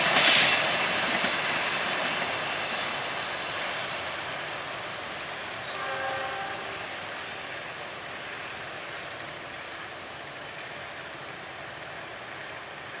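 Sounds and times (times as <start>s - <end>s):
train rolling away: 0.0s - 13.0s.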